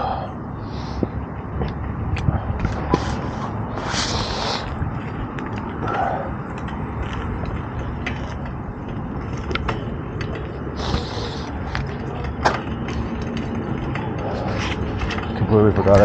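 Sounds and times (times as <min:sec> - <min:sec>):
wind on microphone: 0:00.0 - 0:07.8
bicycle tyre and drivetrain noise: 0:00.0 - 0:16.0.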